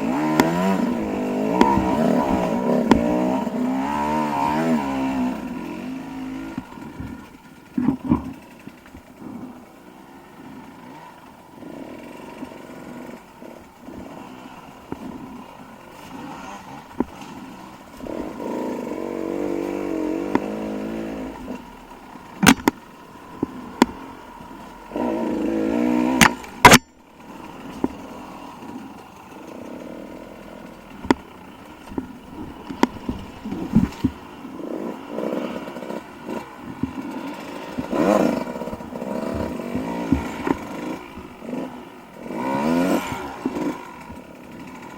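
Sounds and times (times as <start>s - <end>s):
dirt bike engine revving: 0.0s - 44.9s
sharp knocks: 0.1s - 3.4s, 22.4s - 22.8s, 37.7s - 41.6s.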